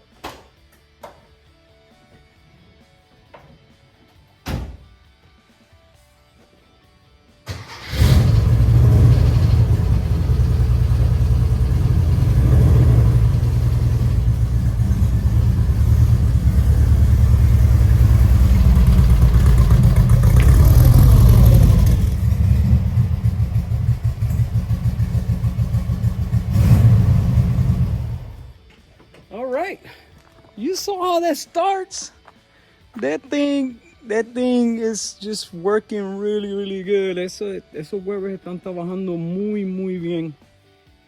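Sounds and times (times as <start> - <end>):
engine starter cranking: 7.5 - 11.8
car engine running: 8.0 - 28.6.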